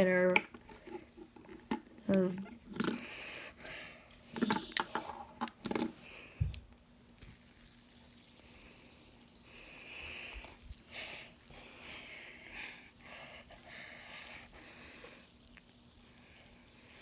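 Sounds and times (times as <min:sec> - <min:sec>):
fidget spinners clicking: 0:07.2 - 0:17.0.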